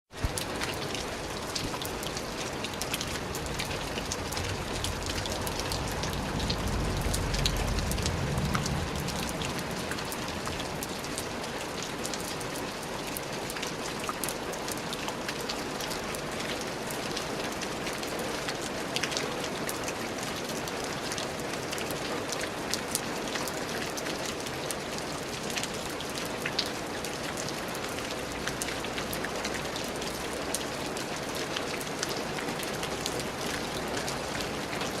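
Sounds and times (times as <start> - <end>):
rain falling on a surface: 0.1 - 35.0
low rumble: 3.2 - 11.1.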